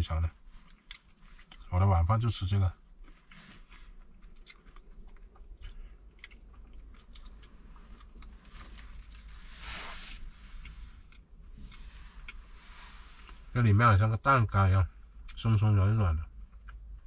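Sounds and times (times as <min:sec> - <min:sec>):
person chewing crunchy food: 0:00.5 - 0:01.7, 0:02.8 - 0:09.5.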